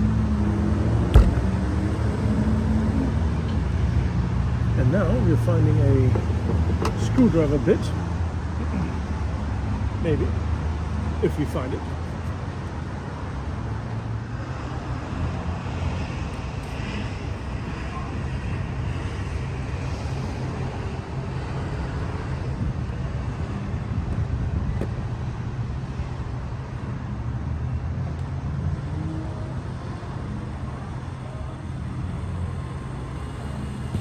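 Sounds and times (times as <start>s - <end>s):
low mechanical rumble: 0.8s - 6.4s.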